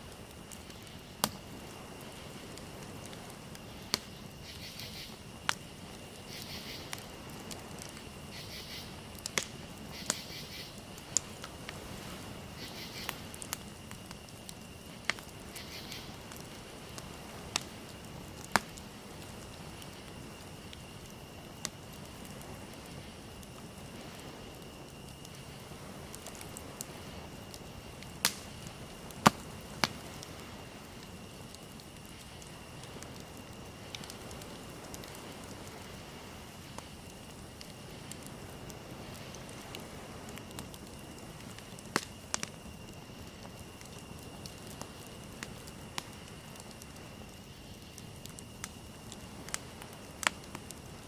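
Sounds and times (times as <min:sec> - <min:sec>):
sharp pops of fire: 0:00.0 - 0:51.0
wood fire crackling: 0:00.0 - 0:51.0.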